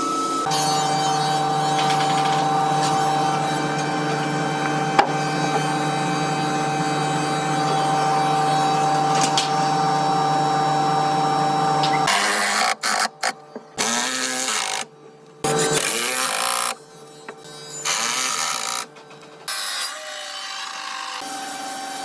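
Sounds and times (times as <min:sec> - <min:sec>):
electric power tool running: 0:00.4 - 0:16.8.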